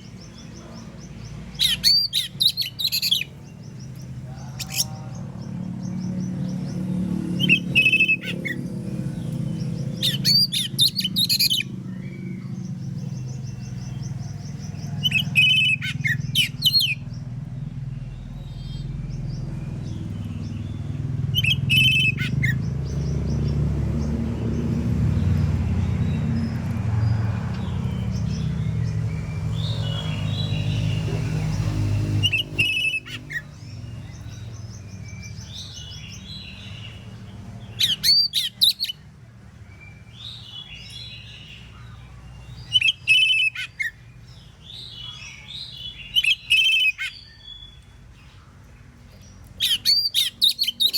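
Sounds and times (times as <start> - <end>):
bird chirping and whistling: 1.5 - 3.3, 7.4 - 8.6, 10.0 - 12.3, 15.0 - 17.0, 21.3 - 22.6, 32.2 - 33.6, 37.8 - 39.0, 42.6 - 44.0, 46.1 - 47.7, 49.6 - 50.9.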